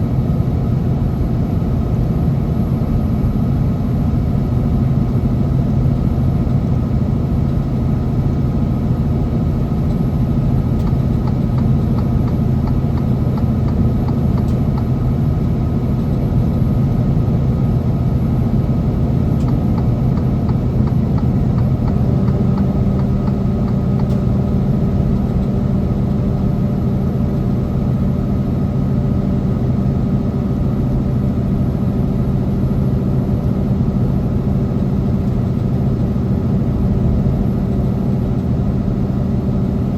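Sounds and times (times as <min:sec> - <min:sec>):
truck diesel engine running: 0:00.0 - 0:39.9
road noise: 0:06.6 - 0:32.6.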